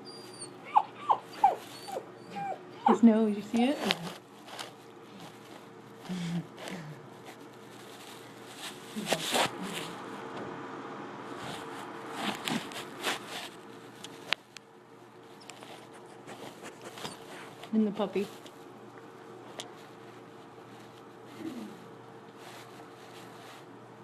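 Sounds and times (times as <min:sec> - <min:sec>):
dogs scratching at a door: 0:08.6 - 0:10.0.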